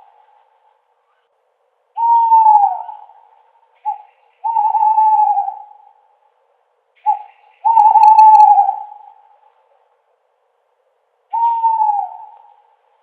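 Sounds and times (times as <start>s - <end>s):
owl hooting: 1.9s - 6.1s, 7.0s - 9.5s, 11.3s - 12.8s.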